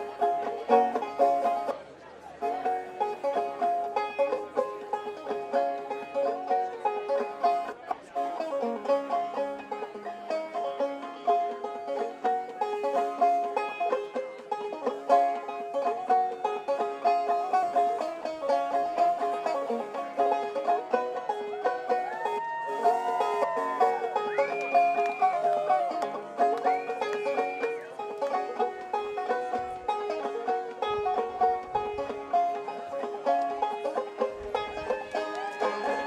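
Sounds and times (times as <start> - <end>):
bluegrass banjo music: 0.0 - 36.0.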